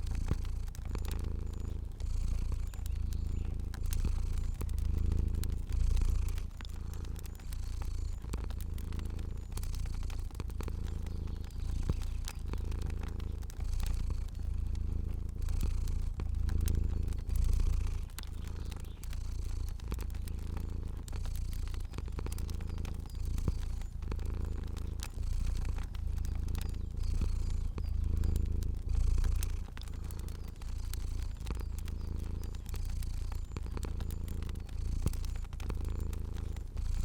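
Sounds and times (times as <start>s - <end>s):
cat purring: 0.0s - 37.0s
fire crackling: 0.0s - 37.0s.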